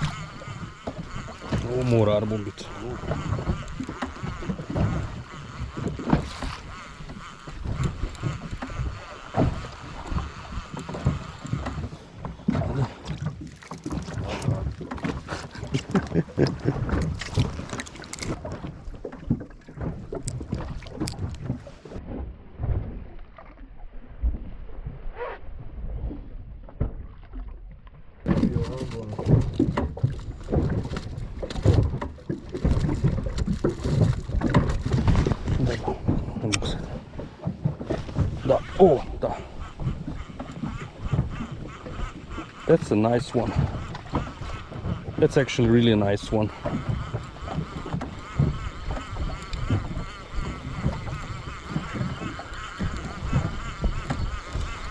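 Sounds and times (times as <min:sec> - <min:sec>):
water against hull: 0:00.0 - 0:54.9
wind on microphone: 0:28.3 - 0:54.9.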